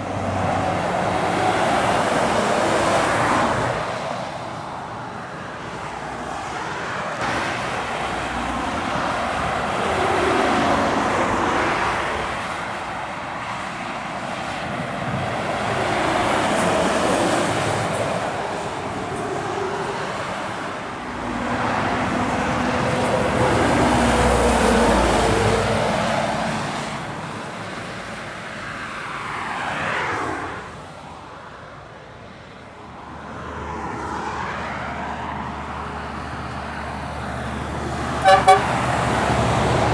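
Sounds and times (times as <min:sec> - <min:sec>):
heavy trucks passing: 0:00.0 - 0:39.9.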